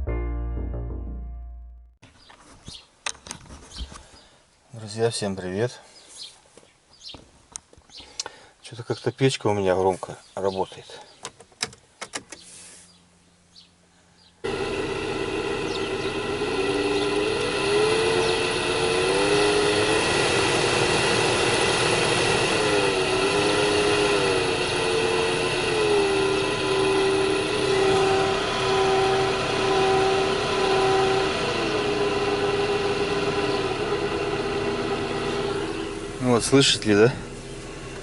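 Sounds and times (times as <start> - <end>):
heater blower motor humming: 14.4 - 38.0.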